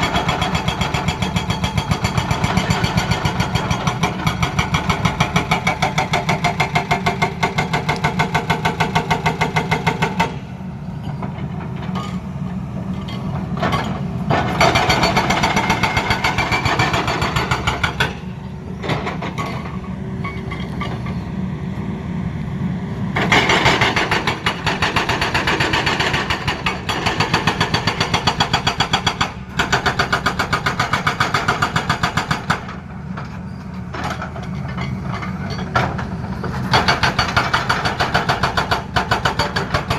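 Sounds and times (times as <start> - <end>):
hydraulic breaker hammering: 36.7 - 39.9.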